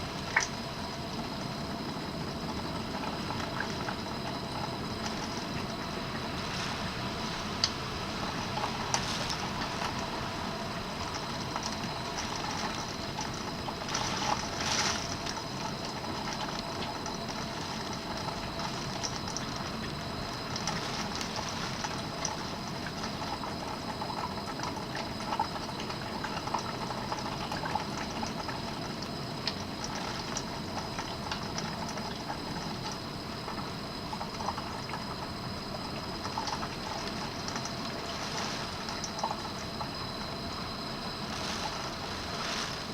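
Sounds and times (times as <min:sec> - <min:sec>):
small ticks: 0:11.0 - 0:42.7
heavy rain: 0:41.0 - 0:42.9.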